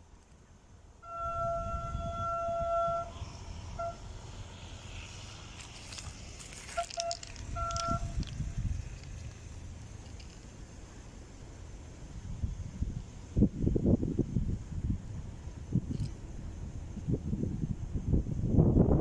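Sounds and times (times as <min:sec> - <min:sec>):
low wind rumble on microphone: 0:00.0 - 0:19.0
locomotive horn blasts: 0:01.0 - 0:04.4, 0:06.6 - 0:08.3.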